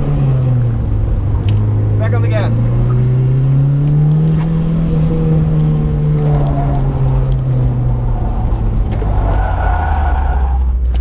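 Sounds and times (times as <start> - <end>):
car engine running under load: 0.0 - 10.0.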